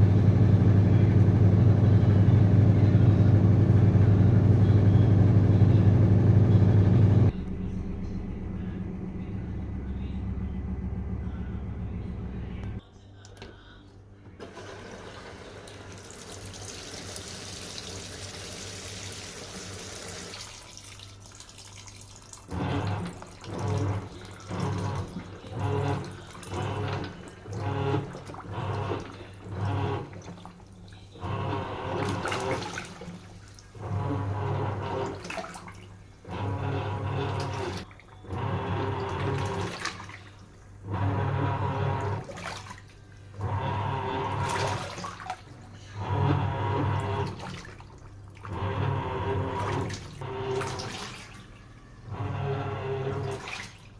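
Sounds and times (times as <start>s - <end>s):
washing machine motor churning: 0.0s - 12.8s, 14.3s - 53.9s
water pouring into washing machine: 14.4s - 53.9s
water sloshing: 20.3s - 53.9s.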